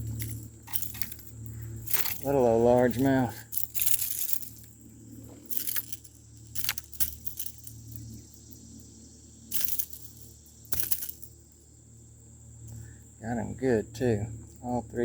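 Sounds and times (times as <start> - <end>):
fishing lure hooks jangling: 0.0 - 8.2, 9.5 - 11.4.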